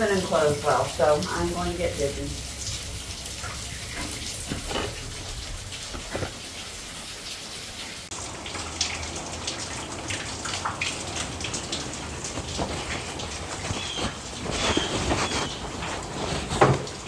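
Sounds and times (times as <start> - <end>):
heavy rain hissing: 0.0 - 8.1
drips and taps: 0.0 - 17.0.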